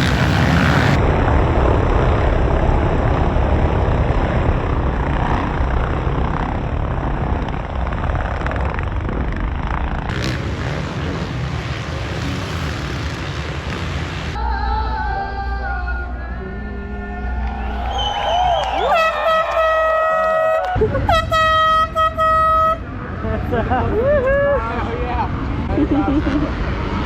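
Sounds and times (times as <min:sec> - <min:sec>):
dirt bike engines running: 0:00.0 - 0:14.4, 0:22.5 - 0:27.0.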